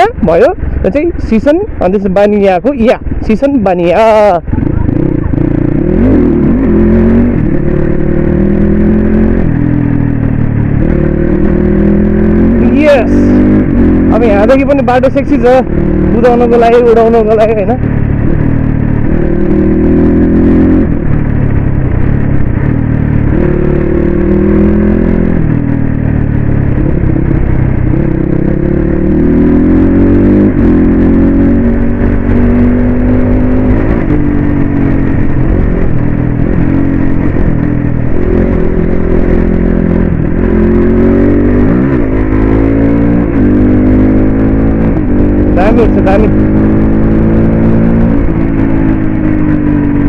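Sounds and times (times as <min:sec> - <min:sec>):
dirt bike engine revving: 0:04.5 - 0:10.1, 0:10.8 - 0:21.2, 0:26.8 - 0:50.0.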